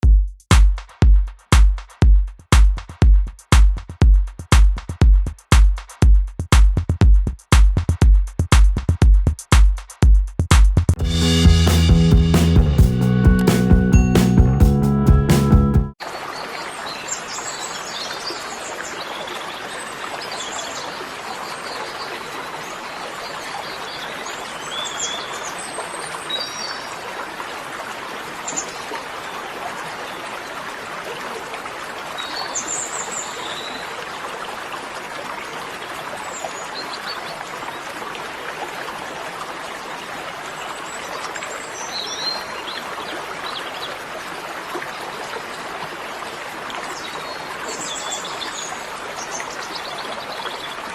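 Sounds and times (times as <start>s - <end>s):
running water: 15.9s - 50.9s.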